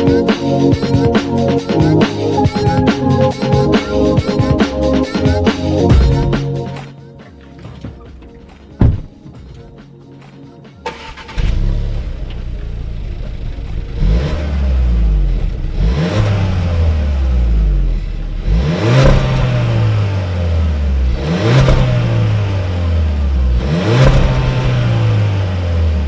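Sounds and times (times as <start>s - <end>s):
car engine revving: 10.8s - 26.0s.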